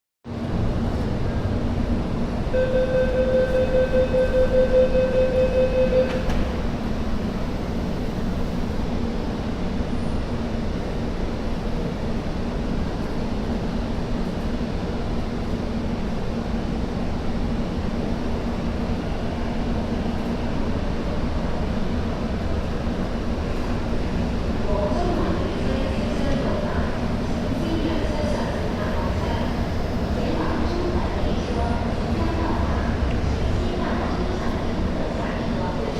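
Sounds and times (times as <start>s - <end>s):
pulsing door warning beep: 2.6s - 6.4s
train departing rumble: 14.6s - 35.9s.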